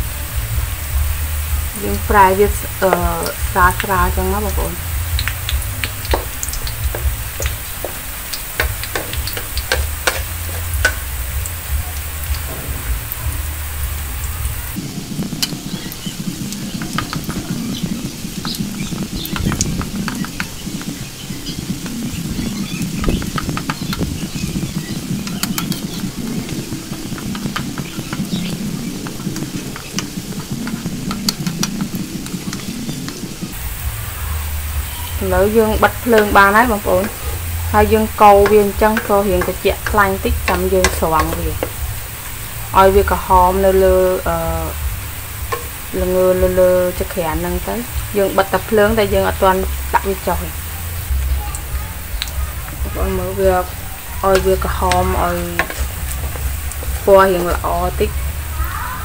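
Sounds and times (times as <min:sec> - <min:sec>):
low steady rumble: 0:00.0 - 0:14.8, 0:33.6 - 0:58.7
low steady hum: 0:00.0 - 0:15.0, 0:33.6 - 0:51.5
shallots sizzling in oil: 0:00.0 - 0:59.0
sharp pops and crackles: 0:00.0 - 0:59.0
wooden spatula scraping wok: 0:04.3 - 0:14.1, 0:33.6 - 0:48.2, 0:52.7 - 0:58.6.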